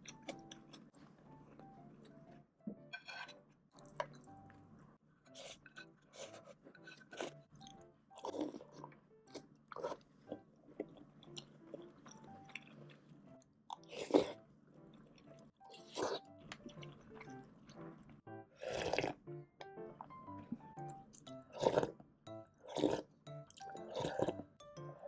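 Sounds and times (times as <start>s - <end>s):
soft background music: 0.0s - 25.0s
person chewing crunchy food: 5.3s - 13.0s, 13.7s - 14.4s, 15.0s - 25.0s.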